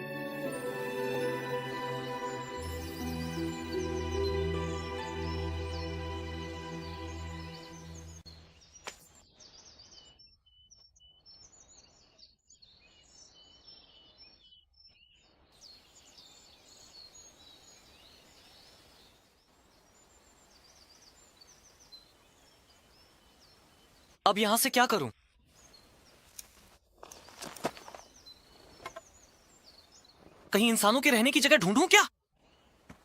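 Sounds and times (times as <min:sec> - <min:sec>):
music: 0:00.0 - 0:08.4
faint outdoor background: 0:00.0 - 0:33.0
small birds chirping: 0:00.8 - 0:32.9.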